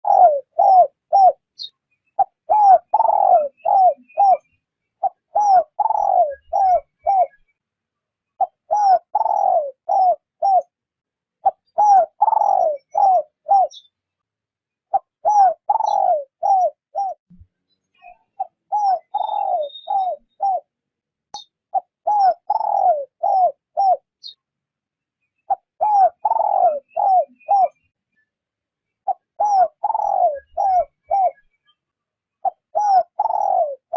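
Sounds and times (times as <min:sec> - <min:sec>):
dove cooing: 0:00.0 - 0:07.4, 0:08.4 - 0:10.7, 0:11.4 - 0:13.9, 0:14.9 - 0:17.2, 0:18.4 - 0:20.7, 0:21.7 - 0:24.4, 0:25.5 - 0:27.8, 0:29.0 - 0:31.4, 0:32.4 - 0:33.9
small birds chirping: 0:00.0 - 0:10.8, 0:11.4 - 0:33.9.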